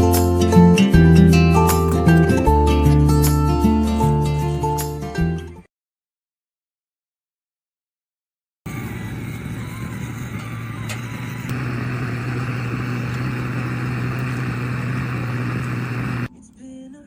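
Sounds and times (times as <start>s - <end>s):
motor hum: 8.7s - 16.3s.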